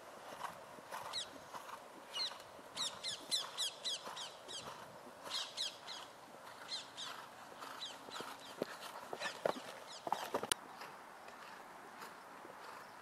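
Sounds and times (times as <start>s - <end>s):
bird chirping: 2.1s - 10.5s.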